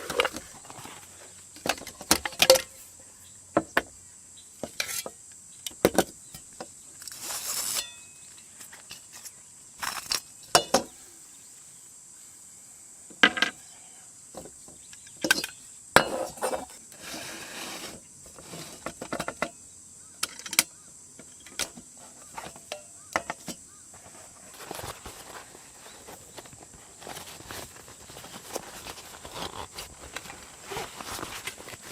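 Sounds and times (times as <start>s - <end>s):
insect chirring: 19.3s - 31.9s.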